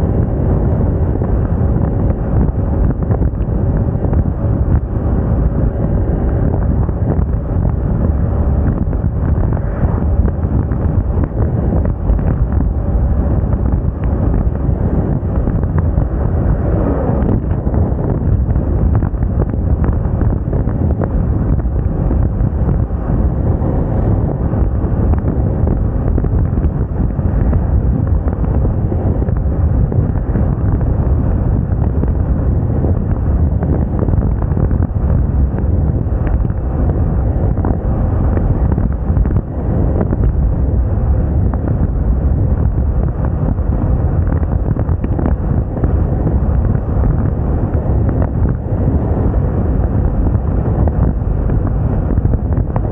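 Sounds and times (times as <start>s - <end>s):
scooter running and road noise: 0.0s - 52.9s
wind buffeting microphone: 0.0s - 52.9s.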